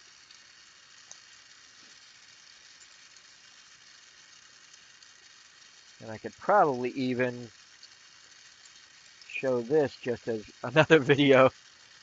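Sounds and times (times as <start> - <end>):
small tick: 0.0 - 6.0, 7.3 - 9.4
torch flame hissing: 0.0 - 12.0.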